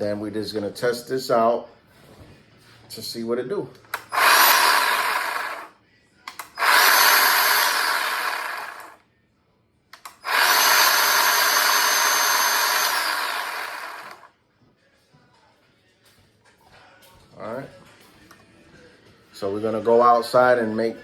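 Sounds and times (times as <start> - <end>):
cordless chainsaw whining: 4.0 - 5.7, 6.4 - 9.0, 10.0 - 14.3.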